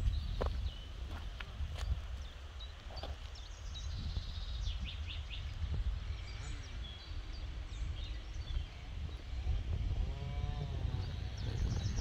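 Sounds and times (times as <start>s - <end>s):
songbirds chirping and trilling: 0.0s - 12.0s
steady low rumble: 3.3s - 12.0s.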